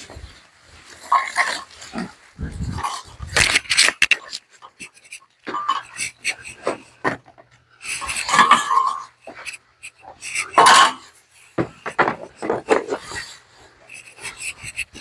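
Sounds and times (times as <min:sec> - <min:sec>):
tools knocking and clattering: 0:03.3 - 0:13.3.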